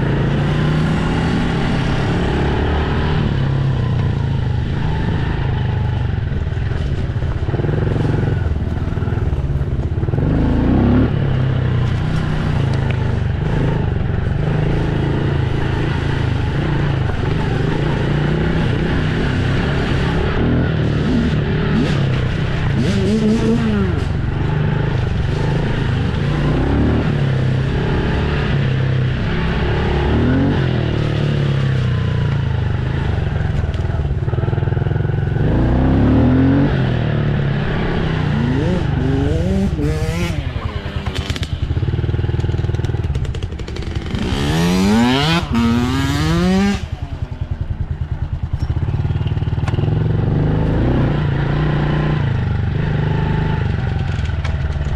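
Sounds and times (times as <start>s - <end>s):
dirt bike engine revving: 0.0s - 9.4s, 10.0s - 54.1s.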